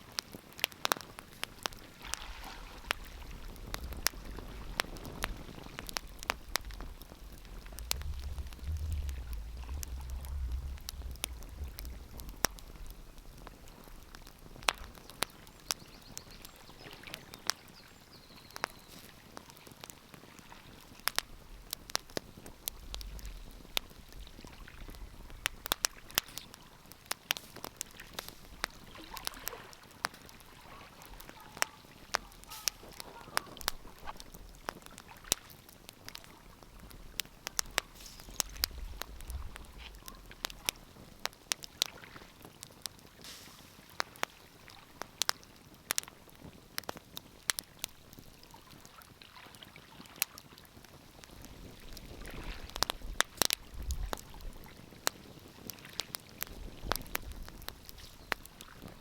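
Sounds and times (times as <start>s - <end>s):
wood fire crackling: 0.0s - 49.1s, 50.2s - 59.0s
soft hiss: 1.0s - 16.5s, 31.9s - 41.4s, 43.2s - 44.9s
low rumble: 3.1s - 14.9s, 36.9s - 40.8s.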